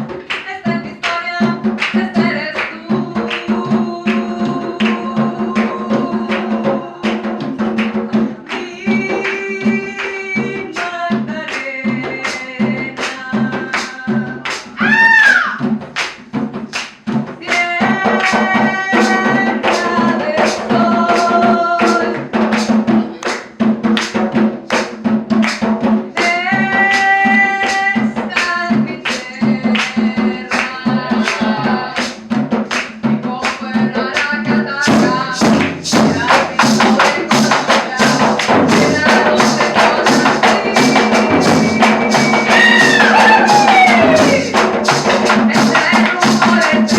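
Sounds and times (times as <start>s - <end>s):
drums and hand percussion: 0.0s - 46.9s
live band playing: 40.6s - 46.0s.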